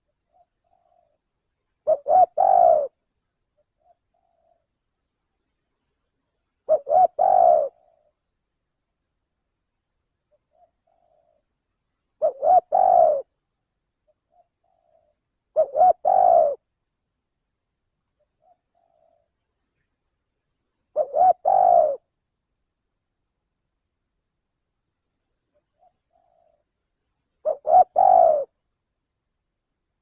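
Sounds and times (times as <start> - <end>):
dove cooing: 0.0 - 1.2, 1.8 - 3.0, 3.6 - 4.7, 6.6 - 8.2, 10.3 - 11.5, 12.2 - 13.4, 14.0 - 16.7, 18.2 - 19.4, 20.9 - 22.2, 25.6 - 26.7, 27.4 - 28.6.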